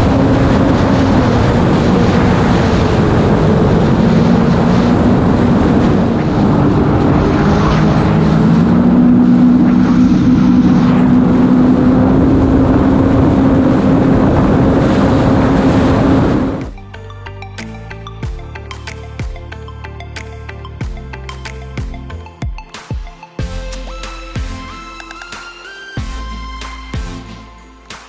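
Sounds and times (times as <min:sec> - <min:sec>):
wind and spray: 0:00.0 - 0:16.7.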